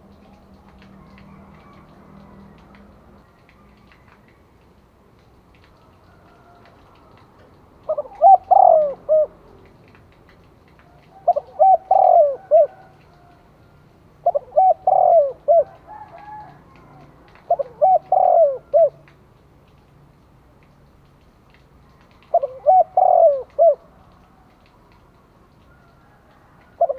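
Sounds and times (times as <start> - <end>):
dove cooing: 6.2 - 9.8, 10.8 - 13.6, 14.2 - 19.1, 22.2 - 24.7, 25.6 - 26.9.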